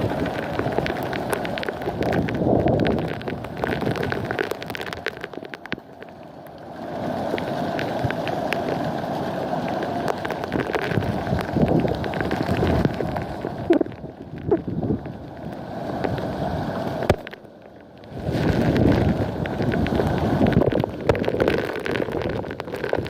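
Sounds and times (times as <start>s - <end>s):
rain: 0.0s - 23.0s
wind buffeting microphone: 1.9s - 4.3s, 10.9s - 15.1s, 18.1s - 21.4s.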